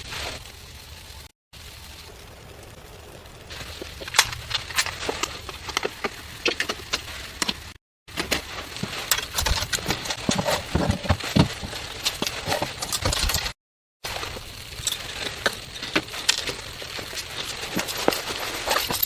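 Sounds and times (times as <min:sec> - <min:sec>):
crunching thumps: 0:03.5 - 0:13.6
sharp clicks and knocks: 0:03.7 - 0:13.6.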